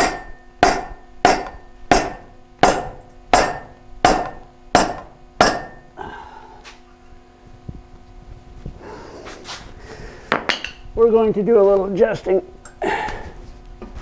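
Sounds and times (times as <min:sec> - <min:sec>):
hammer striking metal pipe: 0:00.0 - 0:06.0.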